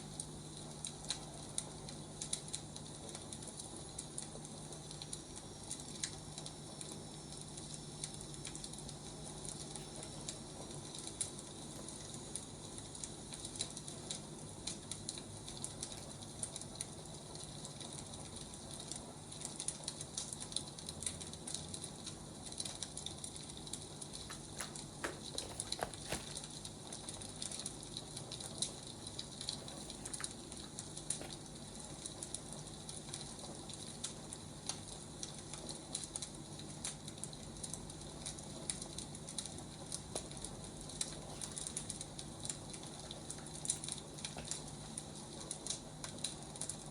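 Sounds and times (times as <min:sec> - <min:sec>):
firewood crackling and popping: 0:00.0 - 0:46.9
low steady hum: 0:00.0 - 0:46.9.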